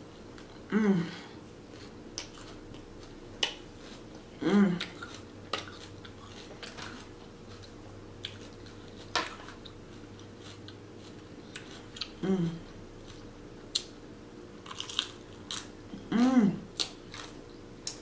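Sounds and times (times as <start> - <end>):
person humming mmm: 0.6 - 1.4, 4.4 - 5.2, 12.0 - 12.8, 15.9 - 16.8
crunchy chewing: 1.6 - 13.9, 14.6 - 18.0.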